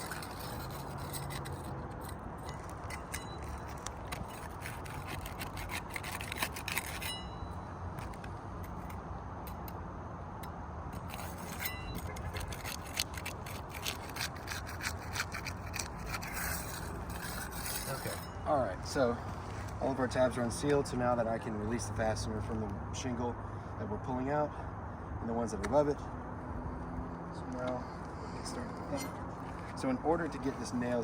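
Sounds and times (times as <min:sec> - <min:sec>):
roof shingles scraping and crackling: 0:02.4 - 0:07.1.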